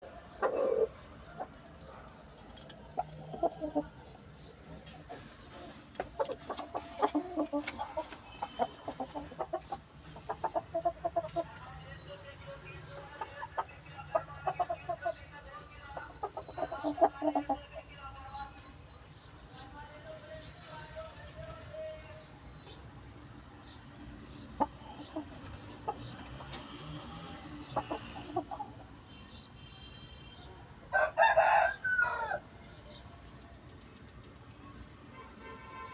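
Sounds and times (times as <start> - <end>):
chickens clucking: 0.0 - 18.8, 21.5 - 29.2
rooster clucking: 5.0 - 11.6, 16.0 - 17.8, 24.4 - 28.9
rooster crowing: 30.9 - 32.5.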